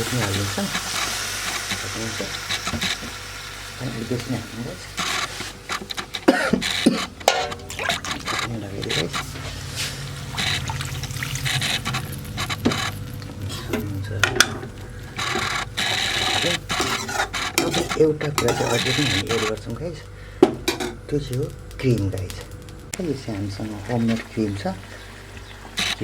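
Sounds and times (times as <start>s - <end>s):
water pouring into a pan: 0.0s - 5.8s, 6.7s - 19.4s
utensil clinking against pan: 6.9s - 8.3s.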